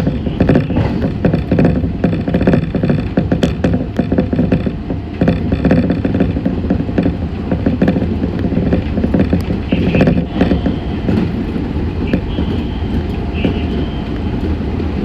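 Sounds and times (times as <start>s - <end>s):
train rumble: 0.0s - 15.0s
train wheels clattering on track: 0.0s - 15.0s.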